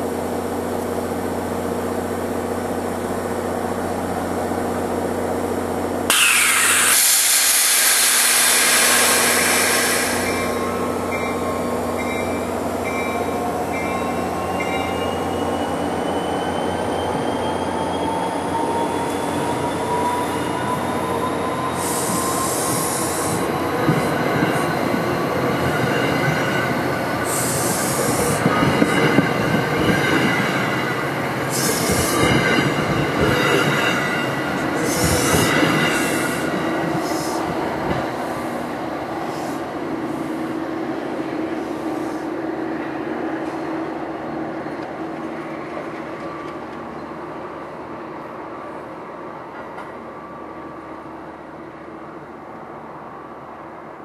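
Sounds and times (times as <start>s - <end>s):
rising train whine: 0.0s - 54.0s
train cars rolling past: 6.0s - 47.3s
loud hiss: 6.1s - 10.9s, 21.8s - 23.5s
train wheel squeal: 6.1s - 37.5s.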